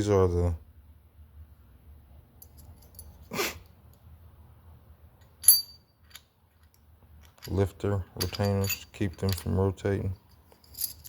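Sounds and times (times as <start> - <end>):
metallic clink with ring: 5.2 - 6.2, 10.3 - 11.0.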